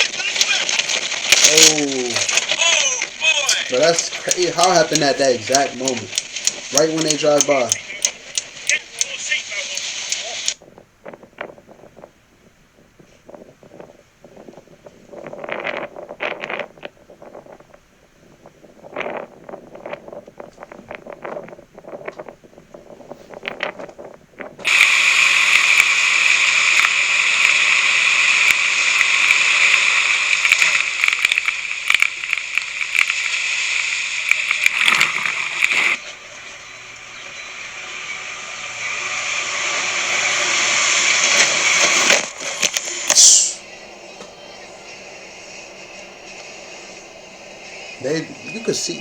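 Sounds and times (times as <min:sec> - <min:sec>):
loud rushing water: 0:24.6 - 0:36.0, 0:36.8 - 0:42.2
sharp sweep: 0:24.6 - 0:48.5.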